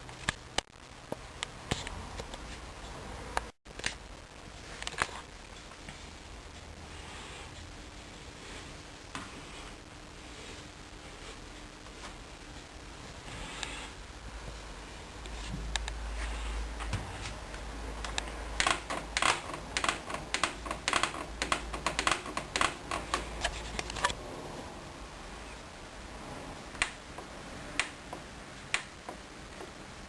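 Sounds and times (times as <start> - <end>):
washing machine controls clicking: 18.0 - 24.0.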